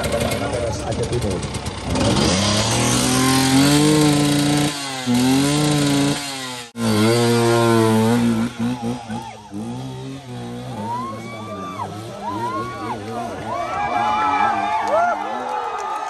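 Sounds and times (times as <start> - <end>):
motorcycle engine revving hard: 0.0 - 14.2.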